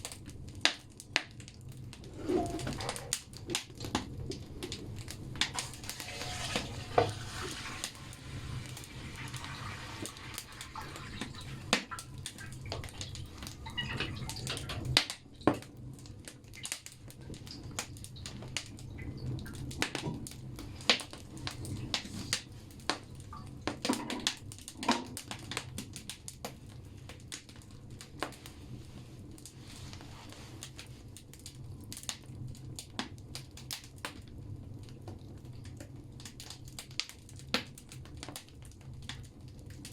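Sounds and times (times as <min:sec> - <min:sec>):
fire crackling and popping: 0:00.0 - 0:39.9
low rumble of fire: 0:00.0 - 0:39.9.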